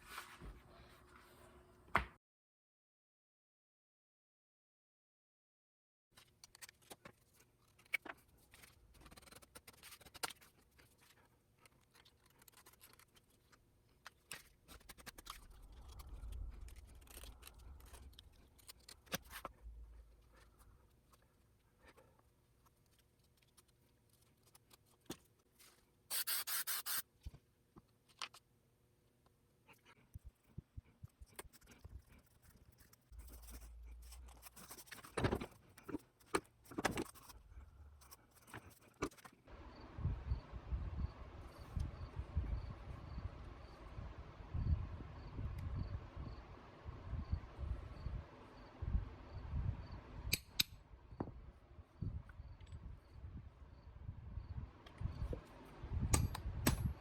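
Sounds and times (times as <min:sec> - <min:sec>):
scraping and rubbing: 0:14.3 - 0:27.0, 0:31.0 - 0:39.5.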